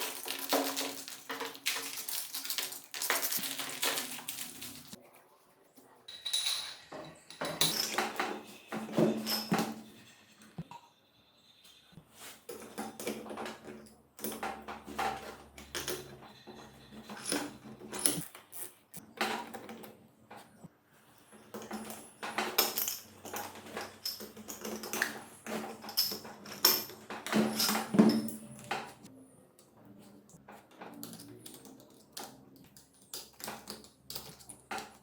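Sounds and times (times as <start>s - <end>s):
metal tools clinking and clattering: 6.1s - 10.6s, 14.4s - 18.3s, 21.4s - 29.1s.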